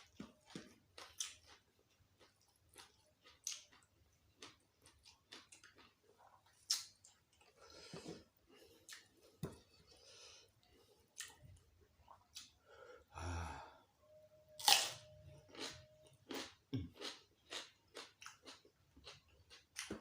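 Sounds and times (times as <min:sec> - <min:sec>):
close chewing and biting: 0:00.0 - 0:09.4, 0:15.5 - 0:20.0.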